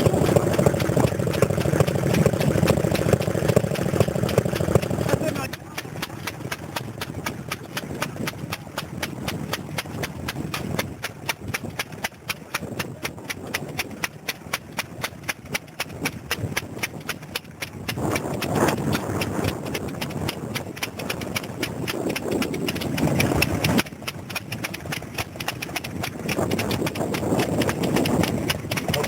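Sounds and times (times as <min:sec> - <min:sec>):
stationary engine knocking: 0:00.0 - 0:29.0
voices: 0:05.0 - 0:06.3.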